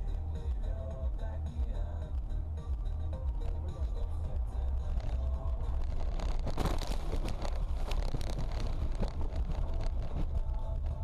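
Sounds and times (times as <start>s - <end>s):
car road and engine rumble: 0.0s - 11.0s
wind buffeting microphone: 4.3s - 11.0s.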